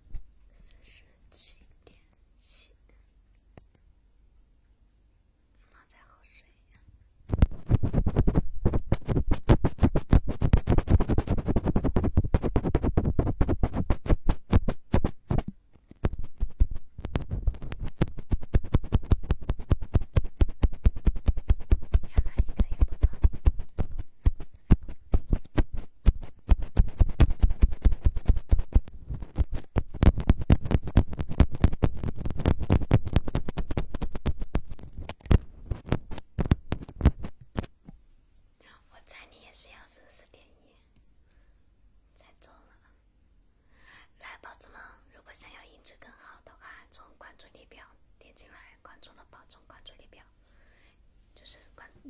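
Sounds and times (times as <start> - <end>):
scratching on a microphone: 7.3 - 37.8.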